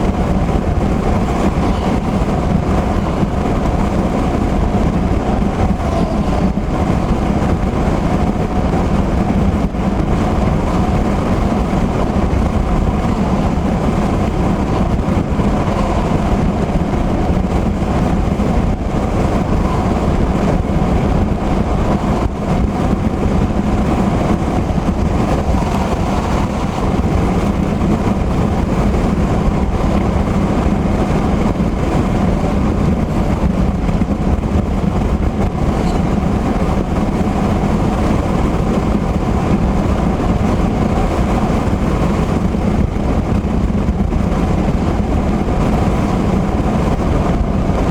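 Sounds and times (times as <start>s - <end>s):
heavy rain: 0.0s - 47.9s
tyre noise on wet road: 0.0s - 47.9s.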